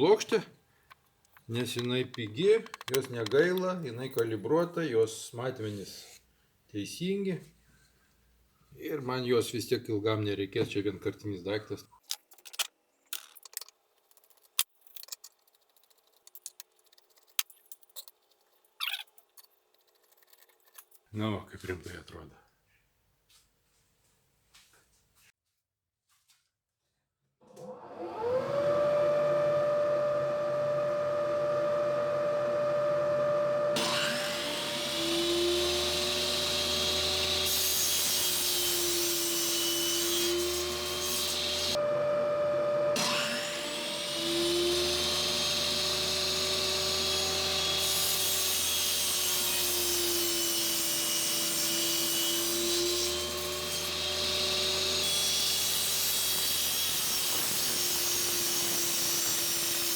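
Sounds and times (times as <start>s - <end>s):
power tool cutting particle board: 27.6s - 59.9s
power tool motor running: 27.7s - 51.8s, 53.1s - 59.9s.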